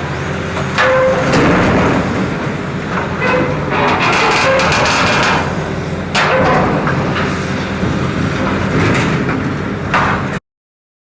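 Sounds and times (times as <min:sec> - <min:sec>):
diesel machinery rumbling: 0:00.0 - 0:10.4
metallic clanks and scrapes: 0:00.8 - 0:07.4.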